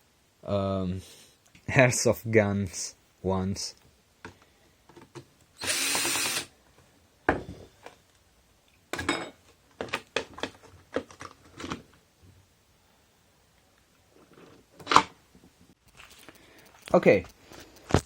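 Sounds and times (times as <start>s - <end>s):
cordless power drill running: 5.6s - 6.5s.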